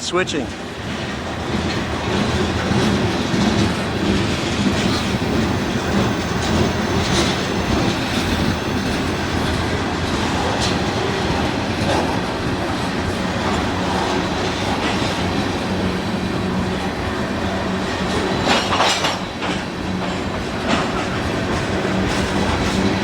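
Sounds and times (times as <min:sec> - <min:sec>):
train wheels rumbling on rail: 0:00.0 - 0:23.0
train wheels clacking: 0:00.4 - 0:23.0
train wheels squealing: 0:02.4 - 0:11.3.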